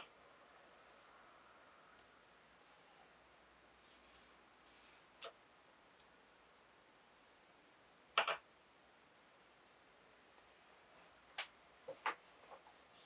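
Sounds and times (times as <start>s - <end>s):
faint scratching strokes: 0.6s - 5.2s, 12.3s - 13.0s.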